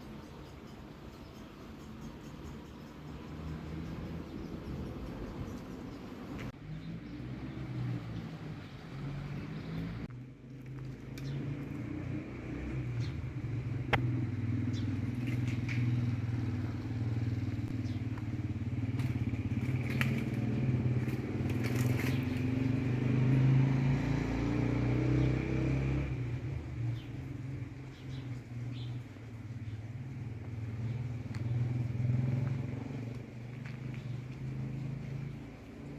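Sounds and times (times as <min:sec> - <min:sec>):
engine running steadily: 0:10.8 - 0:24.5.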